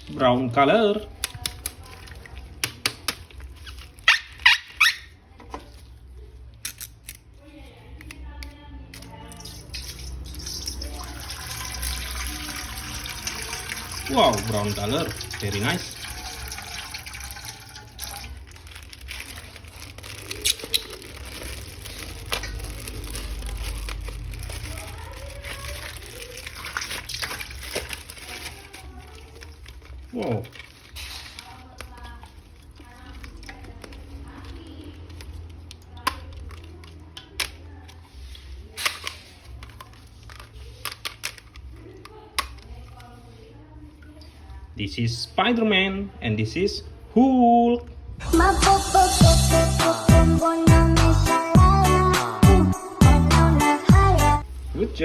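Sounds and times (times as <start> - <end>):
tap water running and splashing: 9.4 - 19.4, 25.2 - 30.8.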